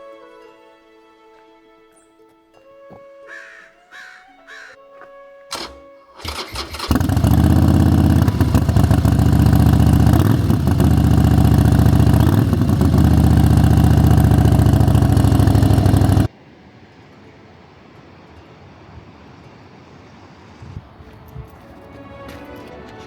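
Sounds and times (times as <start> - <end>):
starter click: 5.5 - 7.5
motorcycle engine starting and running: 5.5 - 16.3.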